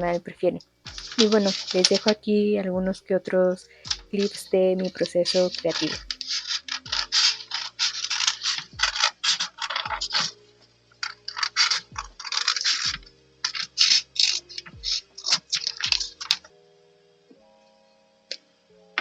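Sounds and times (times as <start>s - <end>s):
scratchy rubbing on paper: 0.9s - 2.2s, 3.9s - 10.4s, 11.0s - 16.4s.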